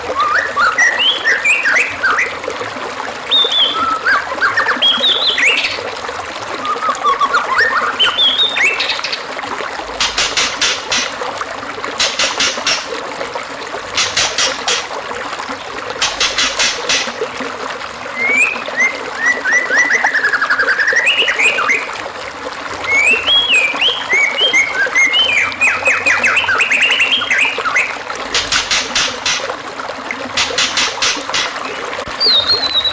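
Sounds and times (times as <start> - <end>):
songbird song: 0.0 - 2.6, 3.2 - 5.8, 6.5 - 9.3, 18.1 - 22.0, 22.8 - 29.5, 30.4 - 32.9
water trickling: 0.0 - 32.9.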